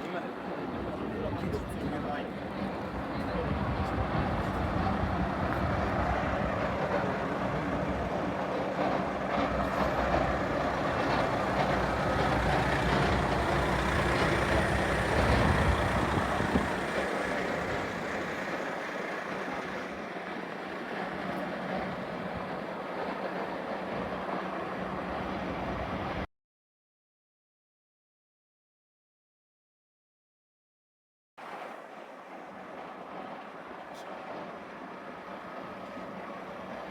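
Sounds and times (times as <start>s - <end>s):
train rumbling: 0.0s - 26.3s, 31.4s - 36.9s.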